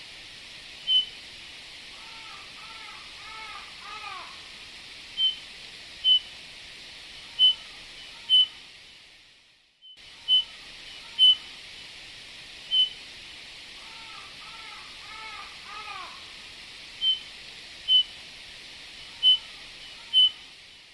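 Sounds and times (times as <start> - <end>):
steady hiss: 0.0 - 20.9
bird piping whistles: 0.9 - 1.2, 5.2 - 5.4, 6.0 - 6.3, 7.4 - 7.6, 8.2 - 8.6, 9.8 - 10.5, 11.2 - 11.4, 12.7 - 13.0, 17.0 - 17.3, 17.9 - 18.1, 19.2 - 19.5, 20.1 - 20.4.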